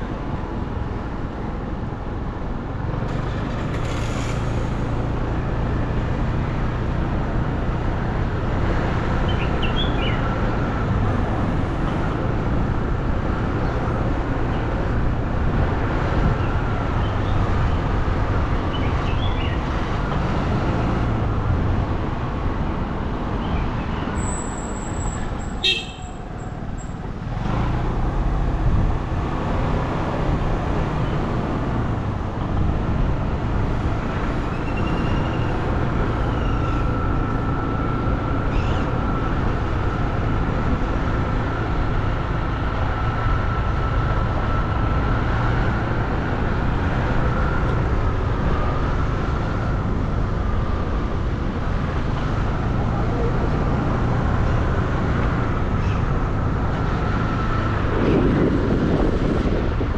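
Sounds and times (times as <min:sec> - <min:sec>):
motorbike engine and road rumble: 0:00.0 - 0:59.9
wind noise: 0:00.0 - 0:59.9.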